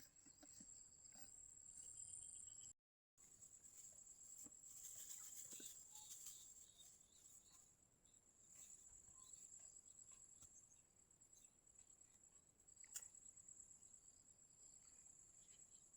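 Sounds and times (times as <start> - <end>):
high-pitched insect chorus: 4.3 - 7.6.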